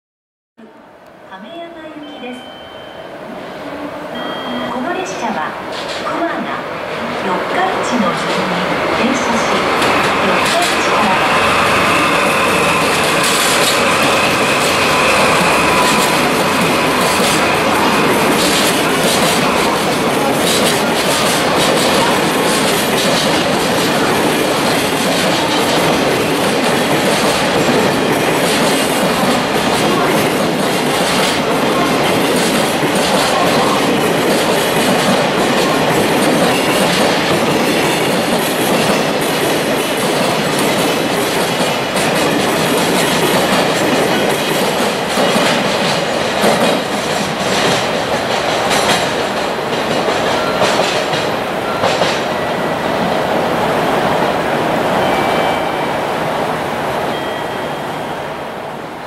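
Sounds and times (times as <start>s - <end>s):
train wheels clattering: 8.2s - 53.3s.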